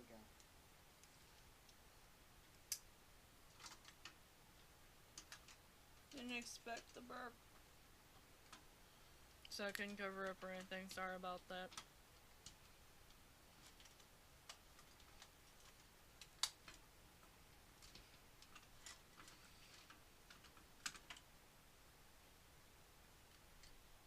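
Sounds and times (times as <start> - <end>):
small hard parts clicking: 3.5 - 7.1, 11.7 - 21.3.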